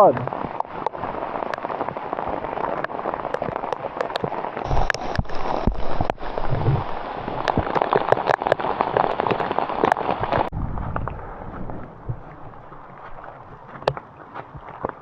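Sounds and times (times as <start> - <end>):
sharp cracks of hailstones: 0.5 - 10.5.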